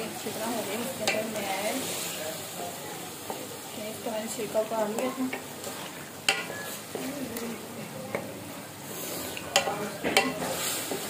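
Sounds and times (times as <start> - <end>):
food sizzling in a metal pan: 0.0 - 11.0
wooden spatula scraping a pan: 8.8 - 11.0.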